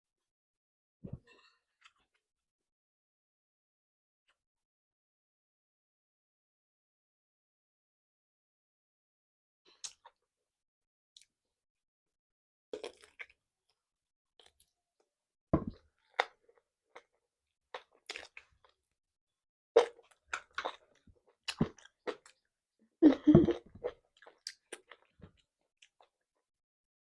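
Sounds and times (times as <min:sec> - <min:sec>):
chewing and biting food: 0:12.8 - 0:13.3, 0:17.7 - 0:18.5, 0:19.8 - 0:22.4.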